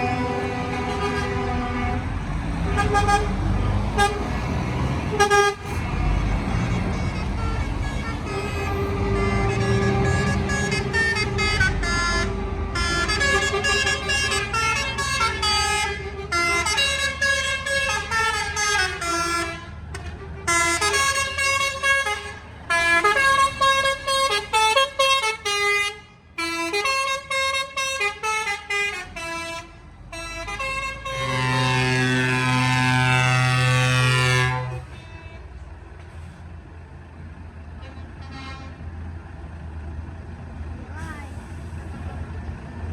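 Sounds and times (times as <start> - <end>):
long air horn blast: 0.0 - 4.4, 5.1 - 35.4, 37.8 - 38.8
musical air horn playing tune: 6.8 - 35.2
low engine rumble: 26.0 - 42.9.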